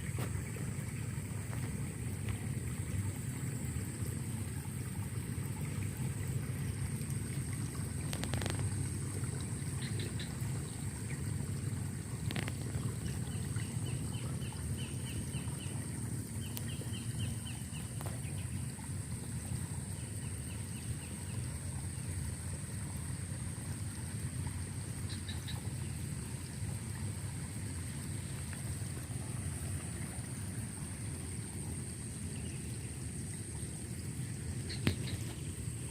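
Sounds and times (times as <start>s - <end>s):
steady low rumble: 25.7s - 35.9s
small birds trilling: 31.8s - 35.9s.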